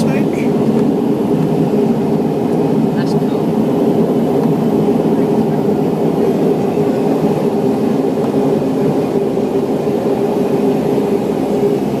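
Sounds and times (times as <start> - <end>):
turboprop engines droning: 0.0 - 12.0.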